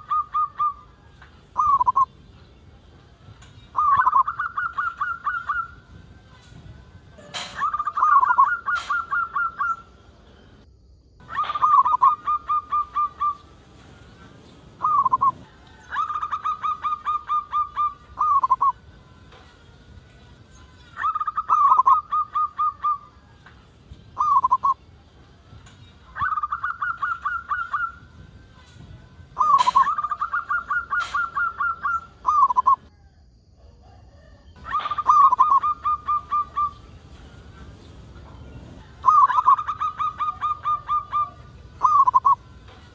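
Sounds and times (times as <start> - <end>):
dove cooing: 0.0 - 0.9, 1.6 - 2.1, 3.7 - 5.9, 7.2 - 9.9, 11.2 - 13.5, 14.7 - 18.8, 21.0 - 23.1, 24.2 - 24.8, 26.1 - 28.2, 29.3 - 32.8, 34.6 - 42.9.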